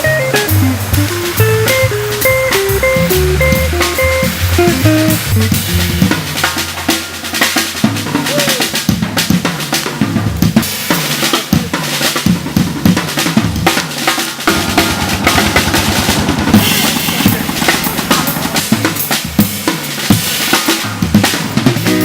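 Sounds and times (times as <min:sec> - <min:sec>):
cymbal crash: 0:00.0 - 0:09.8, 0:14.2 - 0:21.4
drum kit playing: 0:00.0 - 0:22.0
fast snare roll: 0:00.0 - 0:22.0.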